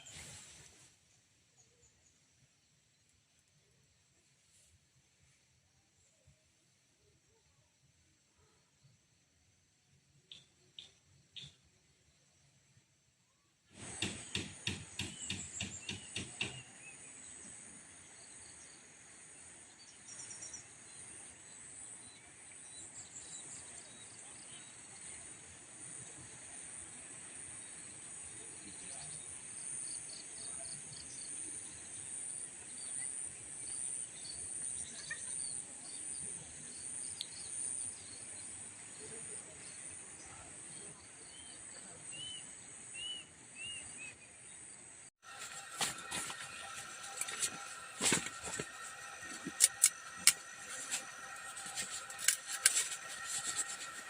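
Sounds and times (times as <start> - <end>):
insect chorus: 44.4 - 54.0.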